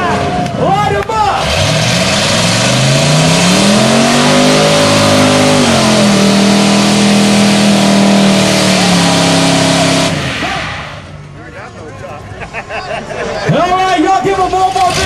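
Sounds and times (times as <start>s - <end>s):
car engine at high revs: 0.0s - 11.2s
spinning tires hissing: 1.2s - 11.2s.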